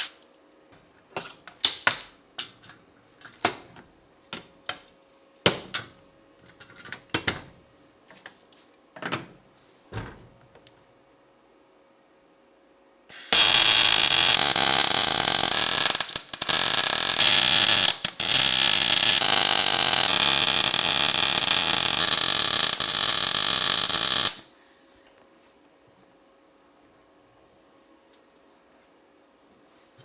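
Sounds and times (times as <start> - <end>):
welding arc buzzing: 13.1 - 24.4.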